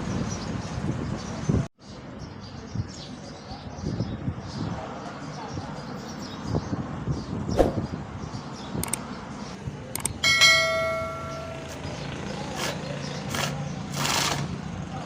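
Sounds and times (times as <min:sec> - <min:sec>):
sharp clicks: 0:08.8 - 0:09.1, 0:10.0 - 0:10.2
metal object ringing: 0:10.2 - 0:11.9.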